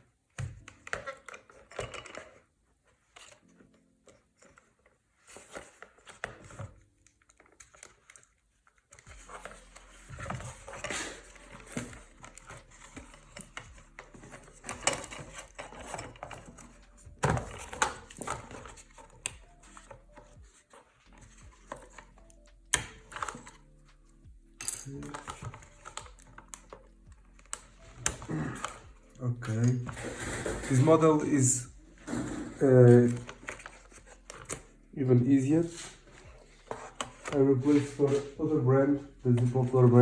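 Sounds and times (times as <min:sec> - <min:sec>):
plastic shell clicking and rustling: 0:05.3 - 0:20.4.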